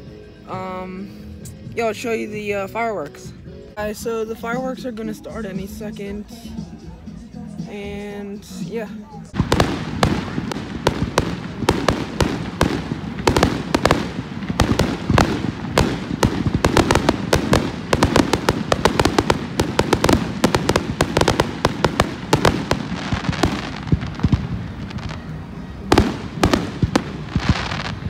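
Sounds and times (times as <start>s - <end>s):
fireworks cracking and banging: 9.3s - 28.0s.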